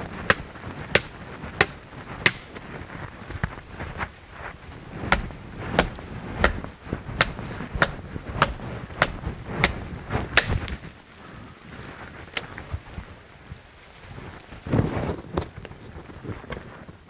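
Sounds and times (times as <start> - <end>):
hand tool striking: 0.3 - 2.7, 5.1 - 10.8.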